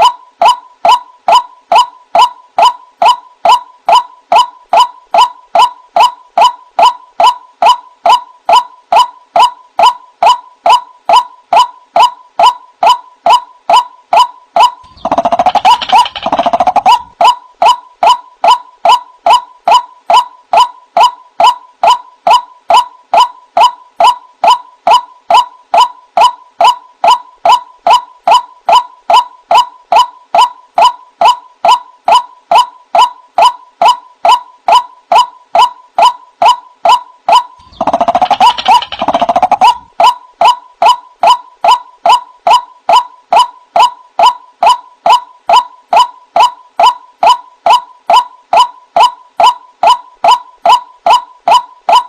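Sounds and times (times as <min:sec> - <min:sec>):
waterhen calling: 0:14.6 - 0:17.4, 0:37.6 - 0:39.9.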